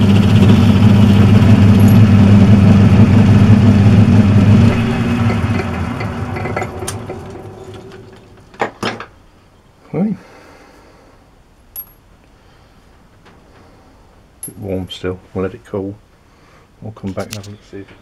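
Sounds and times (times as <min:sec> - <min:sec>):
lathe motor running: 0:00.0 - 0:08.6
lathe winding down: 0:00.0 - 0:08.6.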